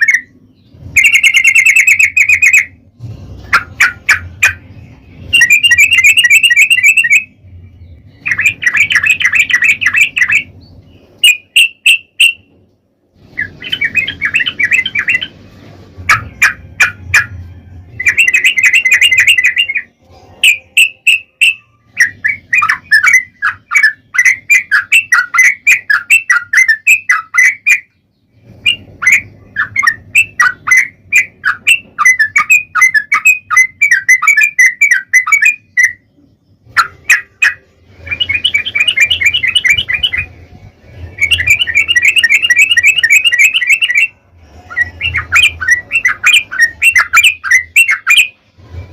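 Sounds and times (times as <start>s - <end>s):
bird singing chattering notes: 0.0s - 2.8s, 3.5s - 12.4s, 18.0s - 28.0s, 28.6s - 36.0s, 41.2s - 48.4s
faint low hum: 0.0s - 48.9s.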